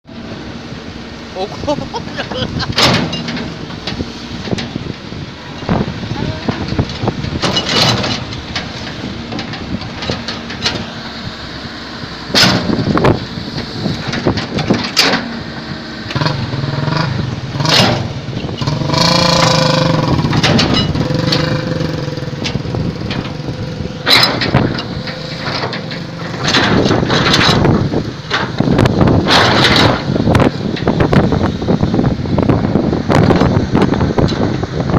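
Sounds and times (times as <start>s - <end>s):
excavator diesel engine: 0.0s - 34.9s
sharp metal clanks and knocks: 2.1s - 5.0s, 6.4s - 11.0s, 12.3s - 31.0s.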